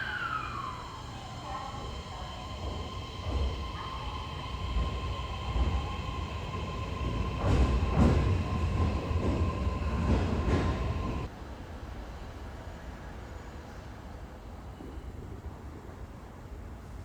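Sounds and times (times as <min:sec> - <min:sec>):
electric train rumble and whine: 0:00.0 - 0:11.4.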